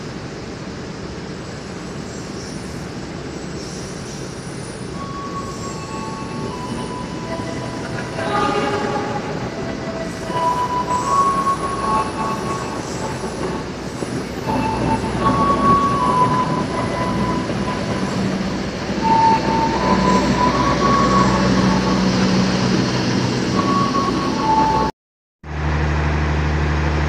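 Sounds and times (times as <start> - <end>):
train wheels rumbling on rail: 2.6 - 24.9
high wheel squeals: 4.6 - 24.9.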